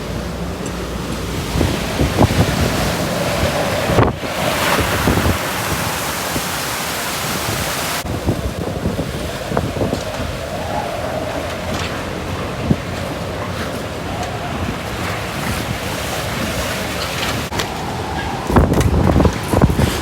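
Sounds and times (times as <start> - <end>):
rushing storm water: 0.0 - 20.0
wind gusting on microphone: 0.0 - 20.0
faint wavering howl: 8.7 - 15.2.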